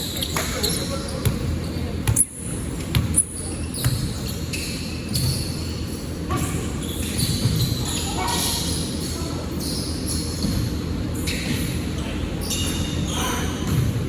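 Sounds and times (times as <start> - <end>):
basketball bouncing on hard court: 1.2 - 4.3, 5.1 - 5.5, 7.2 - 7.8, 13.6 - 14.0.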